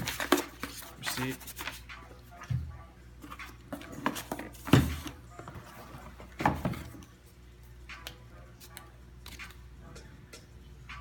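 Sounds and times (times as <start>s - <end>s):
paper and packaging rustling: 0.0s - 1.9s.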